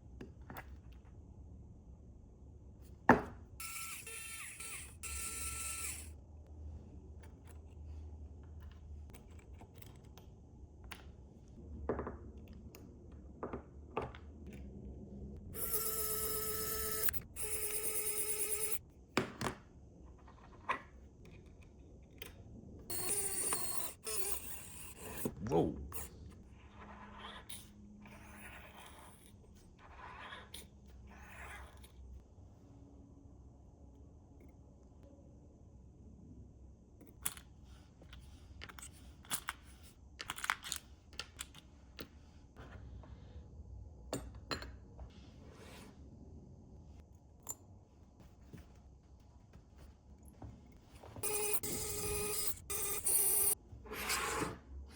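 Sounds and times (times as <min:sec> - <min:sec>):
small electric motor whirring: 0:03.6 - 0:06.2, 0:15.4 - 0:18.8, 0:22.9 - 0:25.4, 0:51.2 - 0:54.3.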